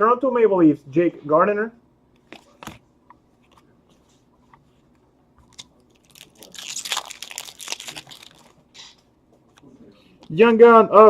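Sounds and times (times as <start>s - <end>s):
foil wrapper crinkling: 5.5s - 8.7s.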